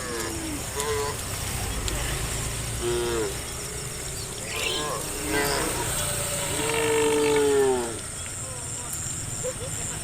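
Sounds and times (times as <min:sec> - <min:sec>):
insects chirping: 0:02.2 - 0:07.3.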